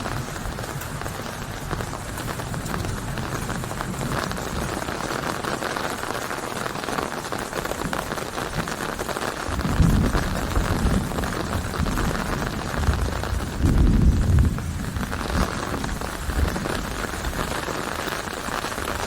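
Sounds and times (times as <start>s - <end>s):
deep thunder rumble: 0.0s - 5.6s, 9.4s - 19.0s
steady rain: 0.0s - 19.0s.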